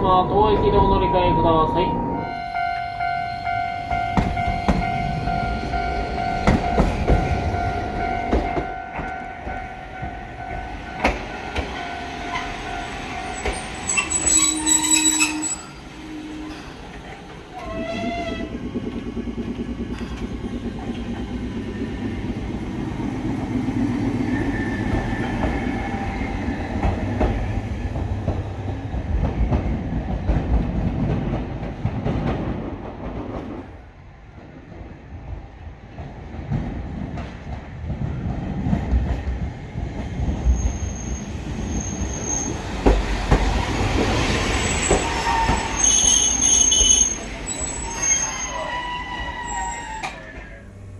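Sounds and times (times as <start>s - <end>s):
tram rumbling on rails: 0.0s - 50.9s
brief high signal: 0.8s - 8.8s.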